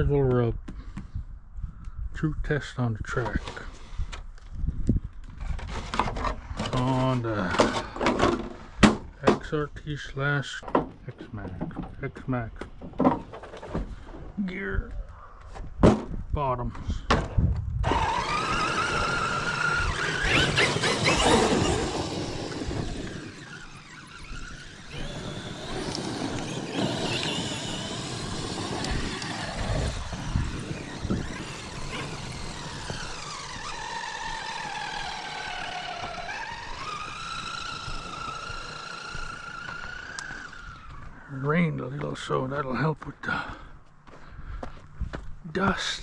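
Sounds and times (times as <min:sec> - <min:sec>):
rc truck motor whine: 0:17.8 - 0:41.3
tires on gravel: 0:17.8 - 0:46.0.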